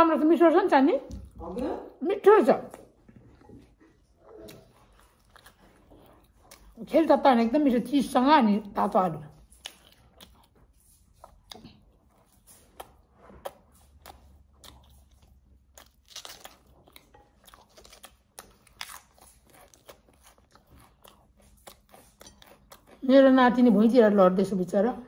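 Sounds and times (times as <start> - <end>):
person chewing crunchy food: 2.8 - 7.0, 8.7 - 24.1.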